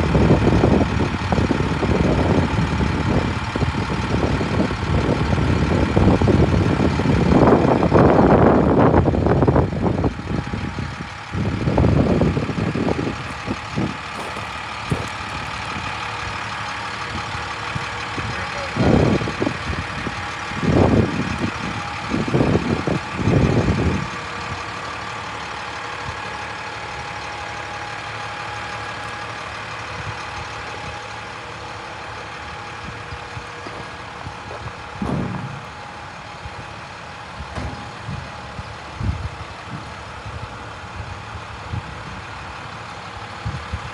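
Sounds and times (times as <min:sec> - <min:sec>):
diesel truck engine running: 0:00.0 - 0:43.9
low rumbles: 0:00.0 - 0:43.9.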